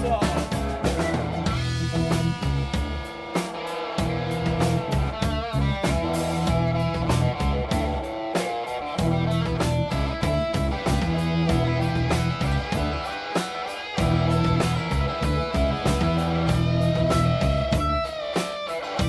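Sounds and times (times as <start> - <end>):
bass guitar: 0.0 - 19.0
electric guitar with bent notes: 0.0 - 19.0
steady drum beat: 0.0 - 19.0.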